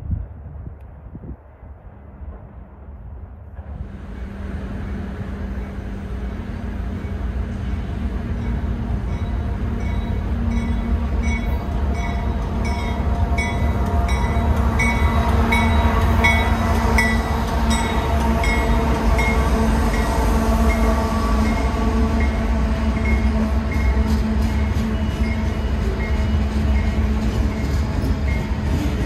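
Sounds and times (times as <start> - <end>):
diesel locomotive rumble: 1.3 - 29.0.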